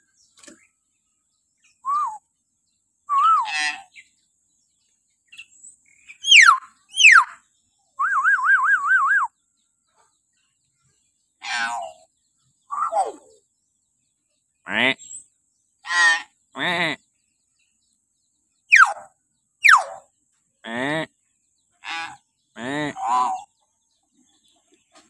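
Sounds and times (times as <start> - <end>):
harsh raspy bird call: 3.2 - 4.0, 6.2 - 7.4, 11.4 - 12.1, 12.7 - 13.4, 14.6 - 15.2, 15.8 - 17.0, 18.7 - 21.2, 21.8 - 23.5
bird wavering trill: 6.2 - 7.4, 12.7 - 13.4, 18.7 - 20.0.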